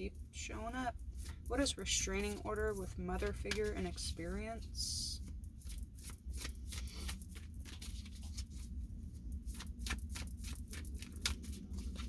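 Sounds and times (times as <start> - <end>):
cards being shuffled: 2.0 - 4.3, 5.2 - 12.0.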